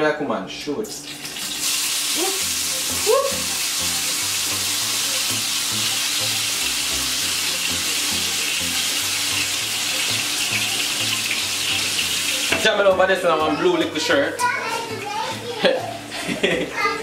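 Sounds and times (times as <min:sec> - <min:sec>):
food sizzling in a frying pan: 0:01.0 - 0:12.8
background music bass line: 0:02.4 - 0:16.6.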